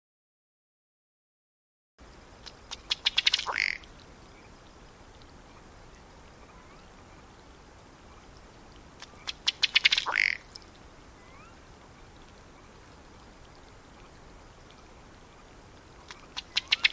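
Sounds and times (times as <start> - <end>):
duck bubbling display call: 2.5 - 3.9, 9.0 - 15.0, 16.0 - 16.9.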